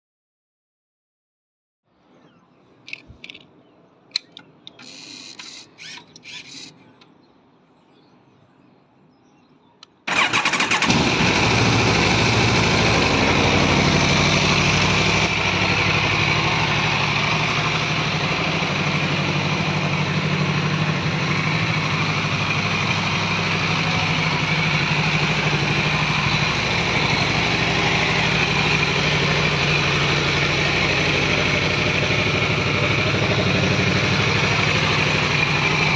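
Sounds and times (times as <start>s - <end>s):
clicks and short whirs: 4.1s - 7.1s
motorcycle engine idling: 10.1s - 35.9s.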